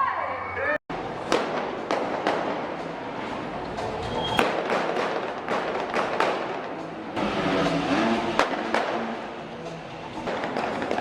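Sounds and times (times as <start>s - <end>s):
steady background noise: 0.0s - 11.0s
sharp bangs and pops: 1.2s - 2.8s, 4.4s - 6.9s, 8.3s - 9.3s, 10.3s - 11.0s
music: 6.3s - 11.0s.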